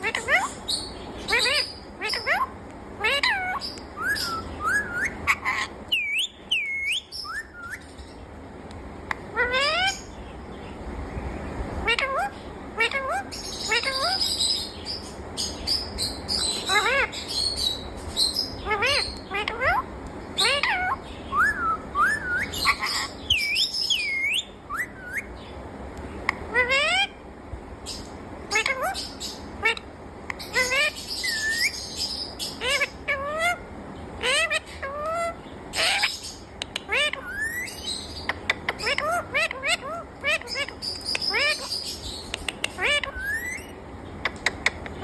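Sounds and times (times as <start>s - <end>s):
parrot squawk: 0.0s - 0.6s, 1.2s - 7.9s, 9.3s - 10.1s, 11.8s - 14.4s, 16.4s - 17.6s, 18.6s - 25.3s, 26.5s - 27.2s, 28.5s - 29.9s, 30.5s - 33.6s, 34.2s - 45.0s
parrot whistling: 1.3s - 7.9s, 20.4s - 25.3s, 36.9s - 37.8s, 42.8s - 43.7s.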